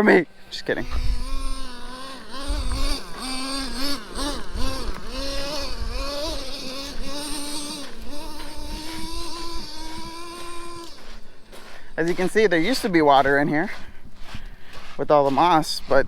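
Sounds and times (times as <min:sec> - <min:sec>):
nitro engine revving: 0:00.0 - 0:13.8.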